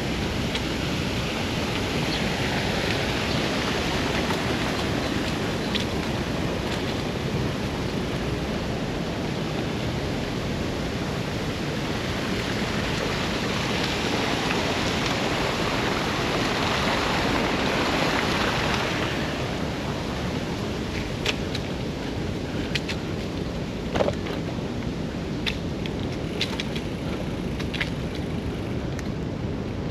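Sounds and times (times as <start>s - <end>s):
wind rushing over microphone: 0.0s - 29.9s.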